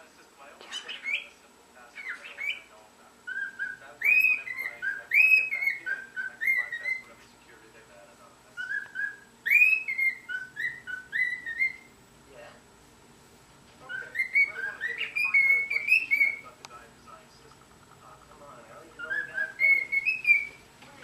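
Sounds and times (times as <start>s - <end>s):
cockatiel whistling a tune: 2.0s - 2.7s, 3.3s - 7.1s, 8.6s - 11.9s, 13.9s - 16.4s, 19.0s - 20.6s.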